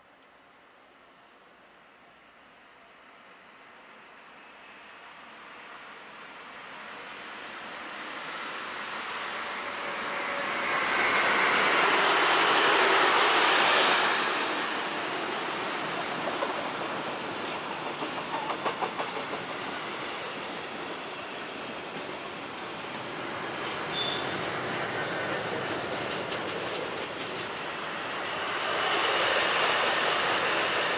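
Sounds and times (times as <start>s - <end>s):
train rumble: 6.5s - 30.9s.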